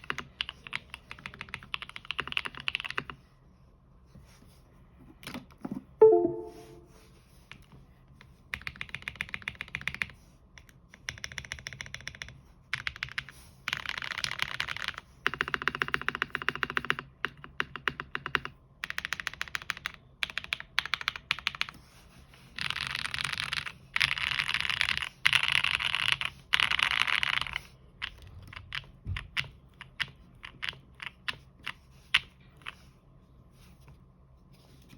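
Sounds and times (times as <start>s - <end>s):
mechanical keyboard typing: 0.0s - 3.1s, 8.6s - 10.1s, 13.8s - 21.7s.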